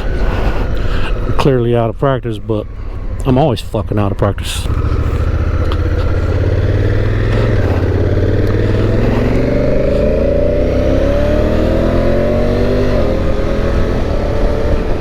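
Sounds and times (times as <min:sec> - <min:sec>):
motorcycle engine accelerating: 0:03.0 - 0:15.0.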